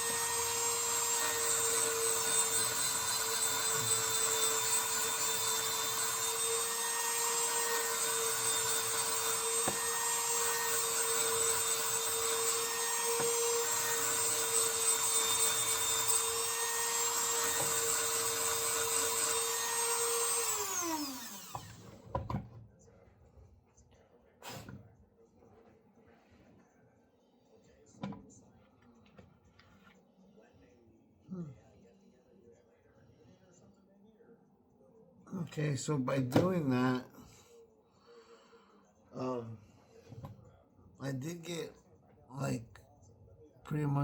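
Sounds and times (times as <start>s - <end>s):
rotary tool grinding: 0.0s - 21.8s.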